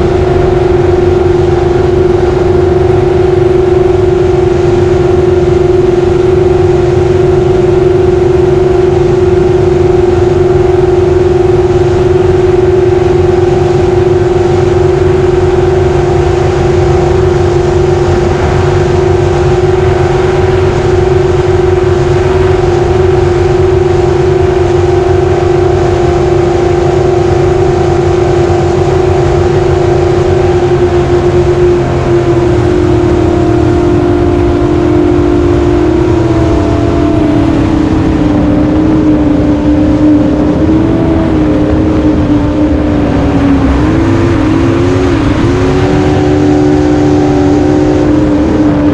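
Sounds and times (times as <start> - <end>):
jet boat engine at high pitch: 0.0 - 48.9.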